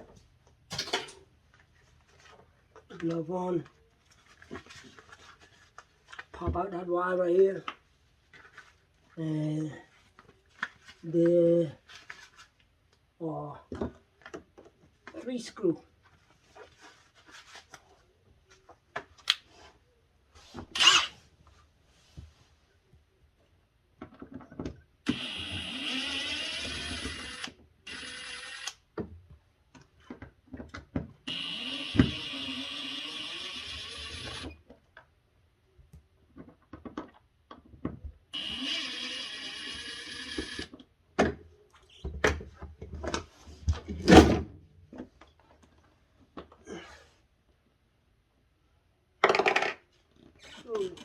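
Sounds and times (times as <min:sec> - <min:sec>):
cordless drill running: 0:20.8 - 0:21.1, 0:25.1 - 0:28.8, 0:31.3 - 0:34.5, 0:38.4 - 0:40.7.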